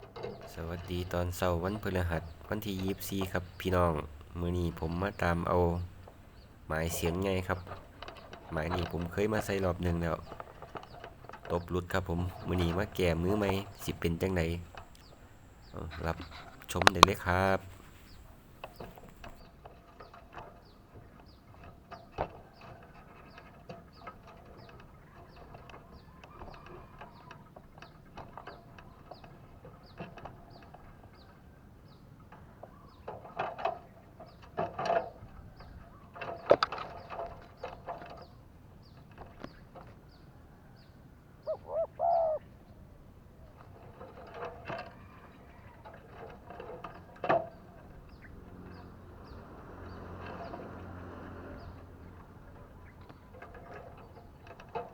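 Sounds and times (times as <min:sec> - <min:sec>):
doves cooing: 0:00.3 - 0:19.4, 0:41.5 - 0:42.4.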